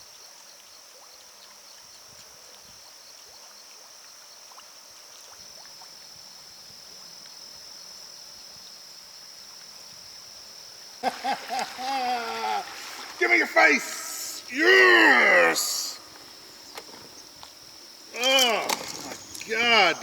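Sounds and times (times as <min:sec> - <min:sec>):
short insect chirps: 0:02.8 - 0:20.0
high-pitched insect drone: 0:06.0 - 0:20.0.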